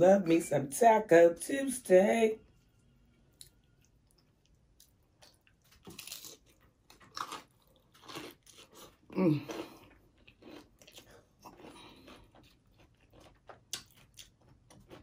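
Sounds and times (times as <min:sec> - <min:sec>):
person crunching food: 0:03.2 - 0:15.0.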